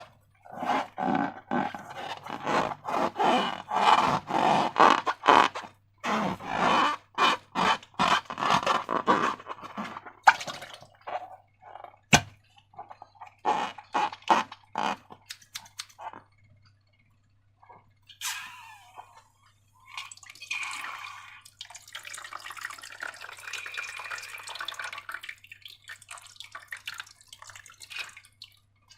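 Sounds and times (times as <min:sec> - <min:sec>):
scraping and crinkling of slime: 0:00.0 - 0:10.3
faint steady hum: 0:00.0 - 0:28.9.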